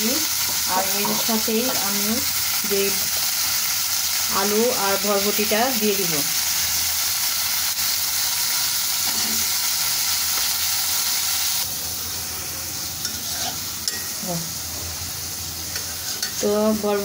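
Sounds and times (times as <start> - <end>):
chicken and onion sizzling in oil: 0.0 - 17.0
spatula stirring in metal pan: 15.7 - 16.4.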